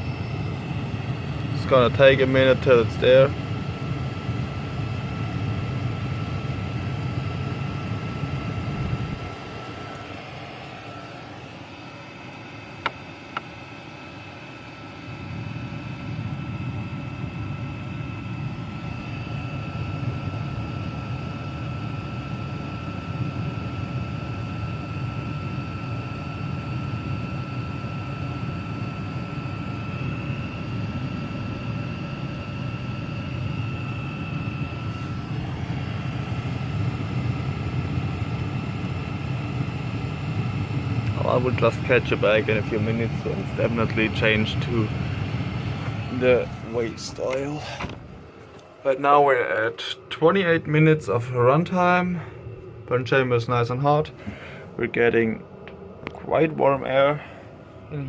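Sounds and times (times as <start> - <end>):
air heater blower whine: 0.0 - 58.0.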